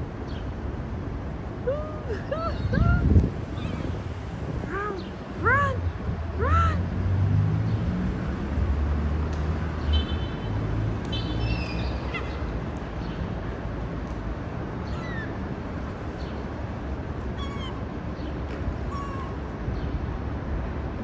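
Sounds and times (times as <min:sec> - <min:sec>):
low traffic rumble: 0:00.0 - 0:21.0
faint high animal calls: 0:03.5 - 0:04.0, 0:14.9 - 0:15.4, 0:17.4 - 0:17.8, 0:18.9 - 0:19.4.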